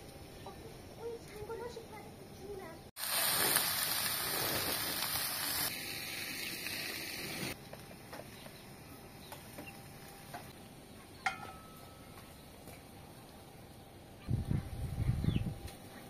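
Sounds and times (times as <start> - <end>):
outdoor background: 0.0 - 16.0
food sizzling in hot oil: 3.0 - 7.6.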